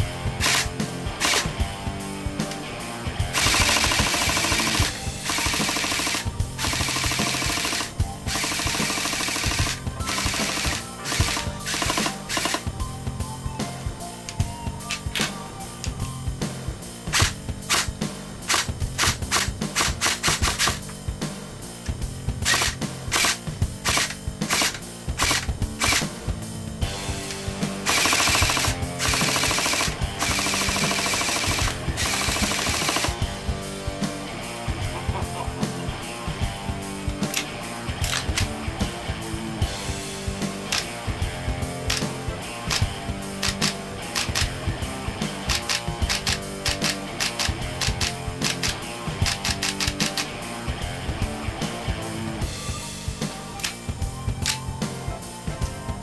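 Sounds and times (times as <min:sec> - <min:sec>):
background music: 0:00.0 - 0:56.0
airsoft gun firing bursts: 0:00.4 - 0:01.6, 0:03.3 - 0:12.7, 0:17.1 - 0:17.9, 0:18.5 - 0:20.8, 0:22.4 - 0:26.2, 0:27.2 - 0:33.4, 0:41.9 - 0:44.6, 0:45.4 - 0:50.4.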